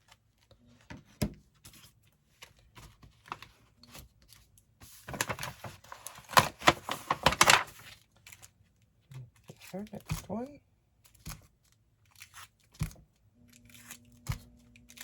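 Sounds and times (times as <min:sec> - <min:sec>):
paper rustling and crinkling: 0:00.0 - 0:10.4.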